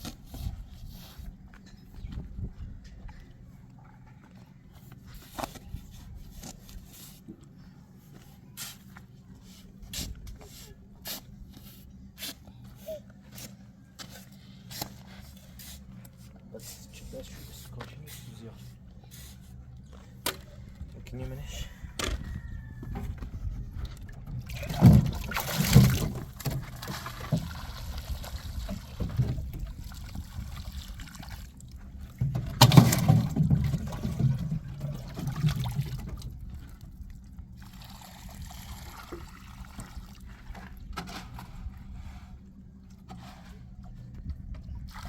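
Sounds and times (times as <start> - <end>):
liquid sloshing and splashing: 23.8 - 41.8, 44.8 - 45.0.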